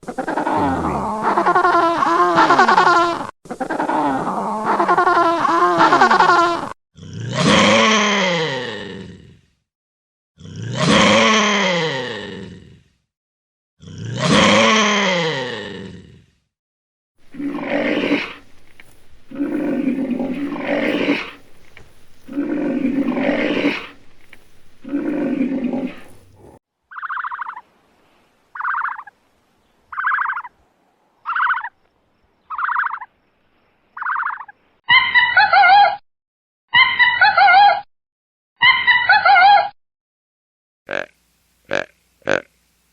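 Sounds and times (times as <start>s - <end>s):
animal roaring: 0.3s - 1.5s, 10.4s - 12.9s, 13.8s - 16.3s, 17.2s - 26.6s
short higher animal calls: 0.4s - 1.2s.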